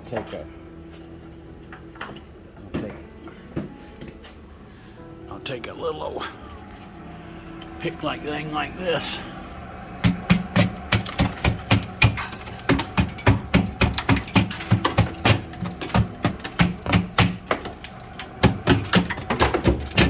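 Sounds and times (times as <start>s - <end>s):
pick chipping ice: 10.0s - 20.0s.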